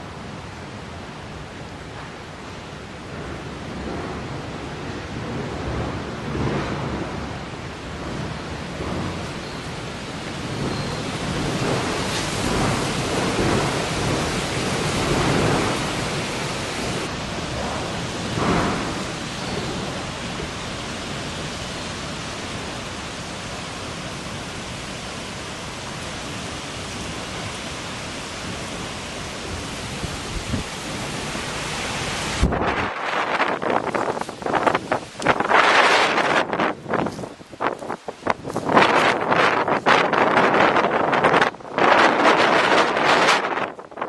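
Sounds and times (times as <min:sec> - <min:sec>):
strong wind blowing: 0:00.0 - 0:44.0.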